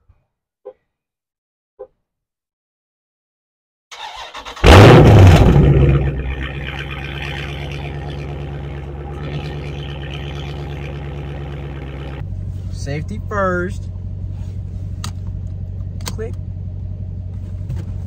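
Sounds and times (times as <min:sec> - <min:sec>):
car engine starting and idling: 0:03.9 - 0:18.0.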